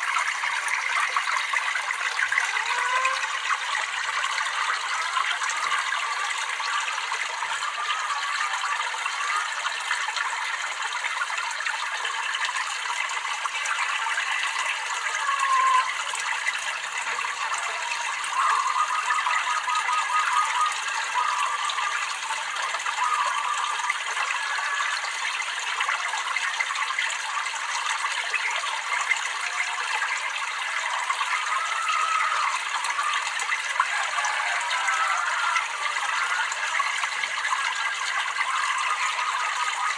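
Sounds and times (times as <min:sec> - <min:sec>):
water trickling and babbling: 0:00.0 - 0:39.9.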